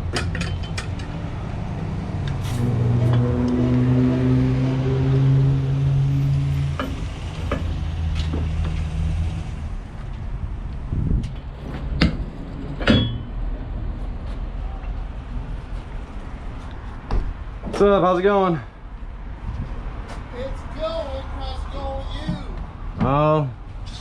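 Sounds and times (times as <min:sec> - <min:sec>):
vehicle engine running: 0:01.0 - 0:11.0
sharp knocks and clicks: 0:06.6 - 0:08.9.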